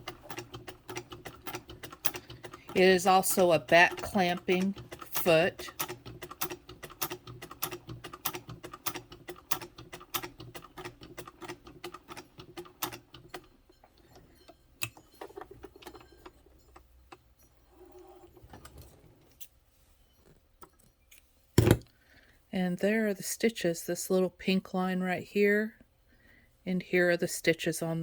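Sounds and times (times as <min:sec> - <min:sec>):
sewing machine clicking: 0:00.0 - 0:17.3.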